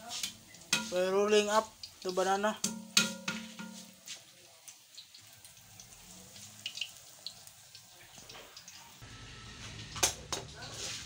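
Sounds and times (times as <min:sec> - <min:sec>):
banana frying in hot oil: 0:00.0 - 0:11.0.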